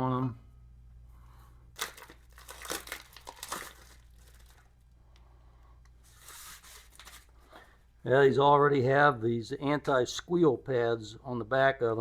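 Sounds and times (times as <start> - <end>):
packaging crinkling and rustling: 1.8 - 4.9, 6.0 - 7.6.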